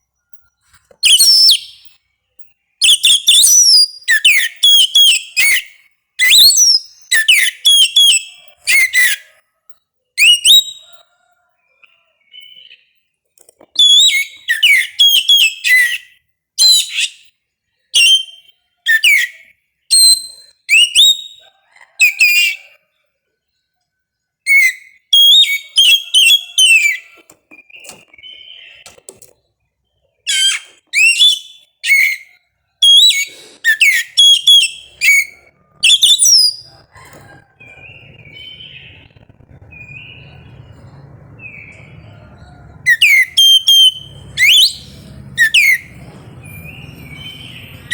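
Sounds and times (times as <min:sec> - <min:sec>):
bird singing whistled notes: 0:00.2 - 0:02.0, 0:02.8 - 0:09.2, 0:10.2 - 0:11.1, 0:13.8 - 0:17.2, 0:18.0 - 0:21.4, 0:30.3 - 0:47.9
faint low hum: 0:36.6 - 0:47.9.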